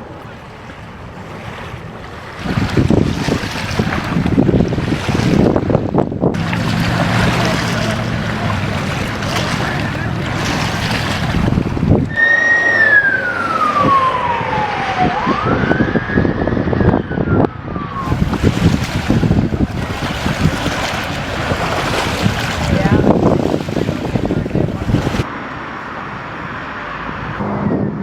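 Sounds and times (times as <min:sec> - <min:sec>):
rushing noise with low hum: 0:00.0 - 0:12.2, 0:13.2 - 0:28.0
emergency vehicle siren wailing: 0:12.1 - 0:18.3.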